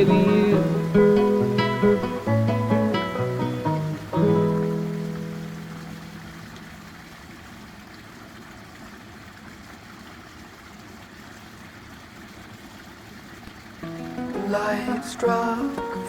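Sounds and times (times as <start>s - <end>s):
acoustic guitar chord ringing: 0.0s - 6.2s, 13.8s - 16.0s
running water: 0.0s - 16.0s.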